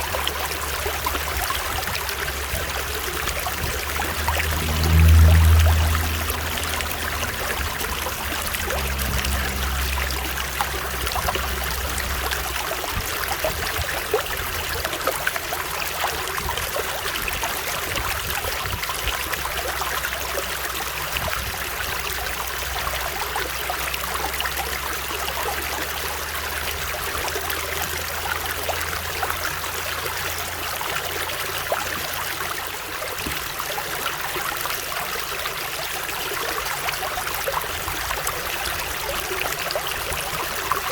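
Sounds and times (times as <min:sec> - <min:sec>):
low rumble: 0:00.0 - 0:25.3
stream rushing water: 0:00.0 - 0:40.9.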